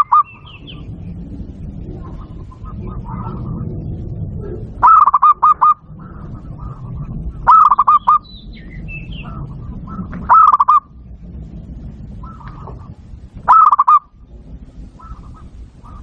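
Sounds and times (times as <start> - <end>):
dove cooing: 0.0 - 11.1, 11.8 - 16.0
steady low rumble: 0.0 - 16.0.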